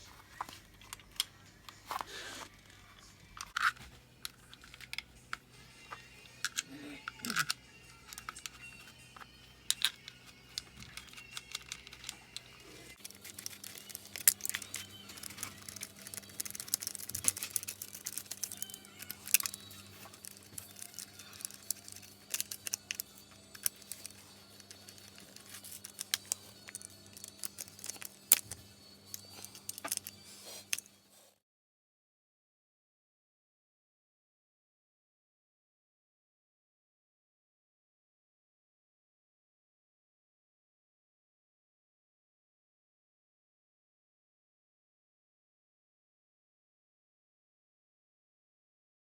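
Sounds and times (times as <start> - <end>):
clicks and rattles of small parts: 0.3 - 30.9.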